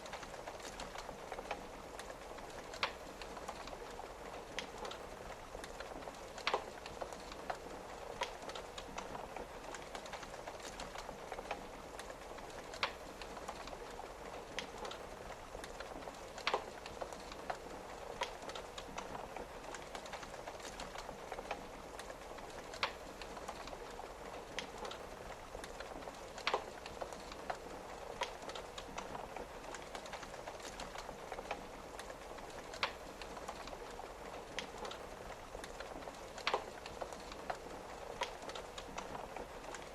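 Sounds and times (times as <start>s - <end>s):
rain on a window: 0.0s - 39.9s
wood fire crackling: 0.0s - 39.9s.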